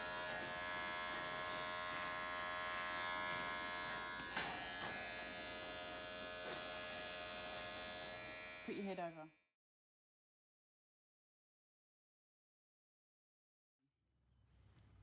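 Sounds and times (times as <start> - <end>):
electric hair clippers buzzing: 0.0 - 9.5.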